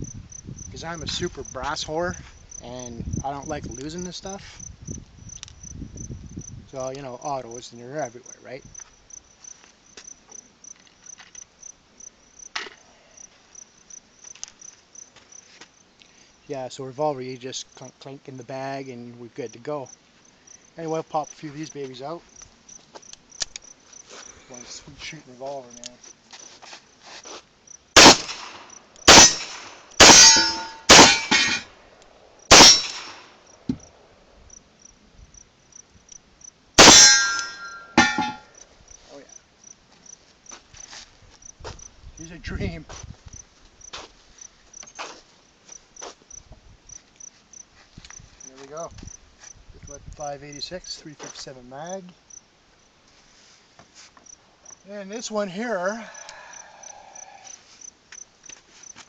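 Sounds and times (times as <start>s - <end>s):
crickets chirping: 0.0s - 59.0s
sharp clicks: 23.1s - 23.7s
revolver gunshots: 28.0s - 31.6s, 32.5s - 33.3s, 36.8s - 38.4s
metallic ringing: 29.1s - 31.7s, 32.5s - 33.2s, 36.8s - 38.6s.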